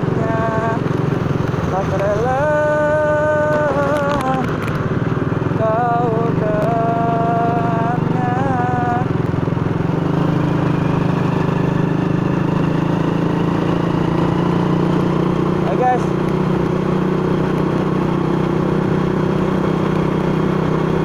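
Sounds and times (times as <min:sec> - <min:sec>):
motorcycle engine running: 0:00.0 - 0:21.0
person humming: 0:00.1 - 0:00.8, 0:05.6 - 0:09.1.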